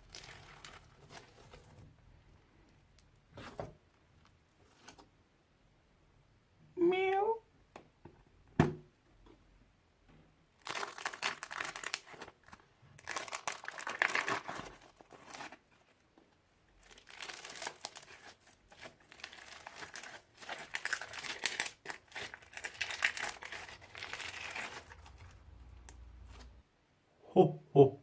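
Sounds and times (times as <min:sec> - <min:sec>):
slime squishing and crackling: 0:16.8 - 0:25.5.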